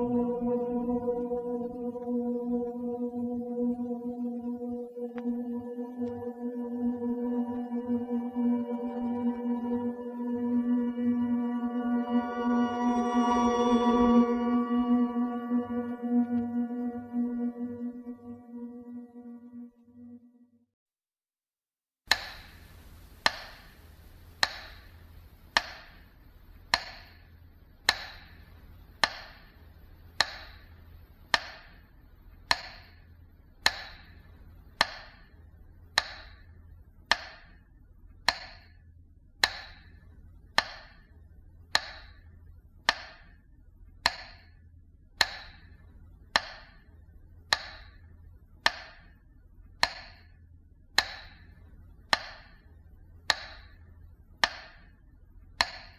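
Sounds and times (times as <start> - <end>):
metronome clicking: 23.2 - 23.7, 24.4 - 26.1, 26.7 - 27.2, 27.8 - 28.4, 29.0 - 29.5, 30.2 - 30.7, 31.3 - 31.8, 32.5 - 33.0, 33.6 - 34.2, 34.8 - 35.3, 36.0 - 36.5, 37.1 - 37.6, 38.2 - 38.8, 39.4 - 40.0, 41.7 - 42.3, 42.9 - 43.3, 44.0 - 44.6, 45.2 - 45.8, 46.4 - 46.8, 47.5 - 48.0, 48.6 - 49.1, 49.8 - 50.3, 51.0 - 51.5, 52.1 - 52.6, 53.3 - 53.8, 54.4 - 54.9, 55.6 - 55.9.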